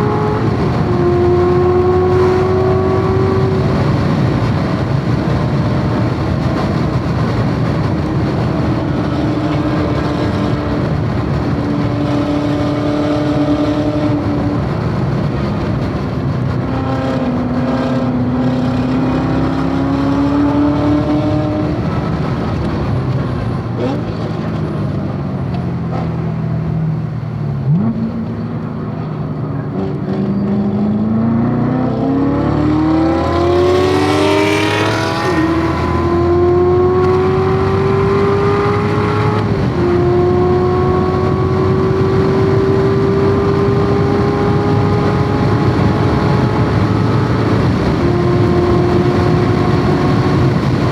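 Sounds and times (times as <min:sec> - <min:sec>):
car engine revving: 0:00.0 - 0:50.9.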